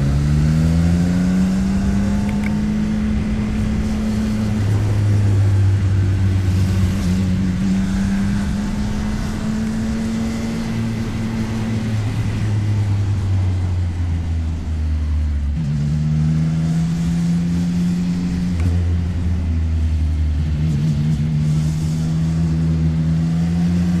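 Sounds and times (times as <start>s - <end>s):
motorcycle engine running: 1.1s - 16.0s.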